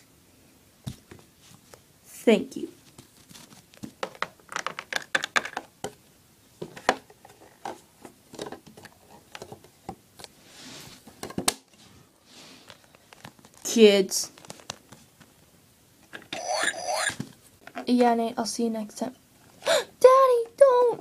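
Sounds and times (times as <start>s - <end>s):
soft rustle: 0.9s - 1.9s, 2.7s - 4.0s, 10.4s - 15.5s
plastic toys clicking on hard surface: 4.0s - 5.7s.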